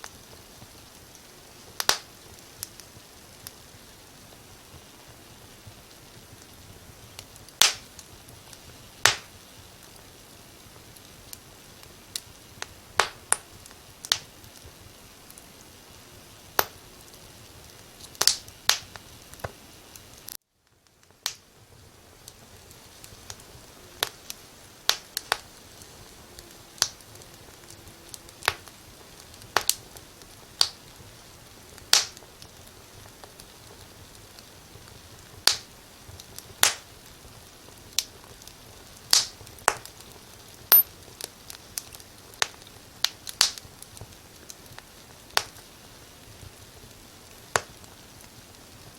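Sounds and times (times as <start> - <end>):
soft fire hiss: 0.0 - 48.9
wood fire crackling: 0.0 - 48.9.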